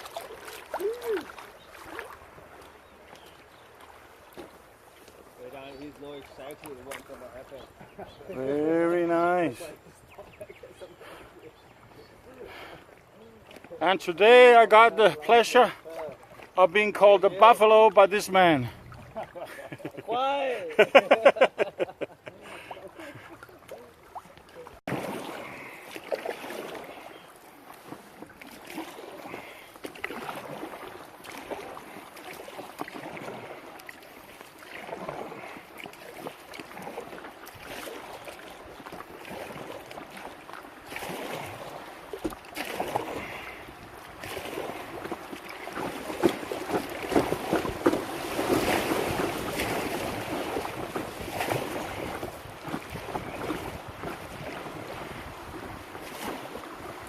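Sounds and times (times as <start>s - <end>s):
river water rushing: 0.0s - 5.4s, 28.4s - 57.0s
wind on microphone: 47.1s - 57.0s.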